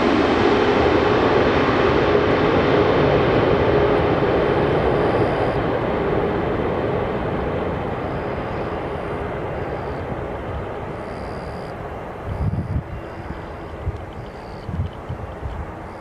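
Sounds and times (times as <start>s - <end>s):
jet engine rushing: 0.0s - 16.0s
faint engine tone: 4.4s - 5.7s, 7.9s - 16.0s.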